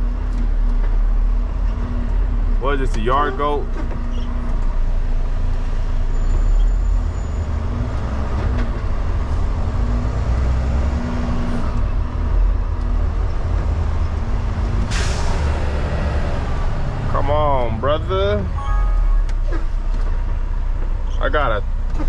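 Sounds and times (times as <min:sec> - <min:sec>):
truck diesel engine rumbling: 0:00.0 - 0:22.0.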